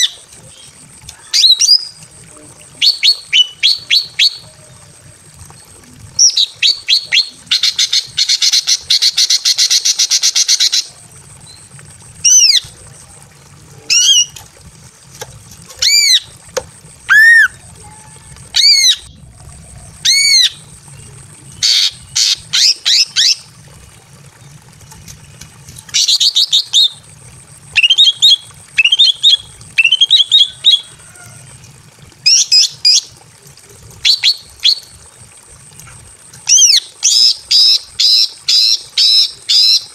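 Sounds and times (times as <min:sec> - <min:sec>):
bird whistles: 0:17.1 - 0:17.6
bird chattering trill: 0:17.1 - 0:19.2, 0:19.9 - 0:23.5.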